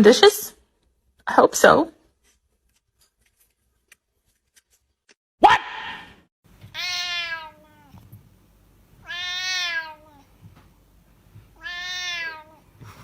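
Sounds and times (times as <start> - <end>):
cat meowing: 6.7 - 8.1, 9.0 - 10.3, 11.6 - 12.6.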